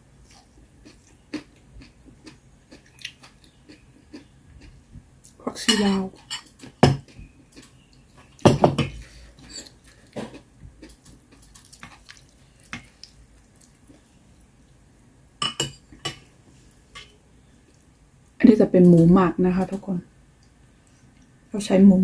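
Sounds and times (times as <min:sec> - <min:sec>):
utensils clinking against dishes: 0:05.6 - 0:06.8.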